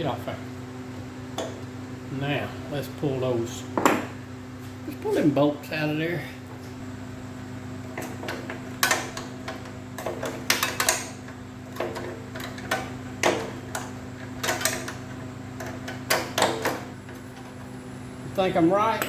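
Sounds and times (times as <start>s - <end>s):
steady low hum: 0.0s - 19.0s
tools and bolts clinking: 8.0s - 11.2s, 11.8s - 16.9s.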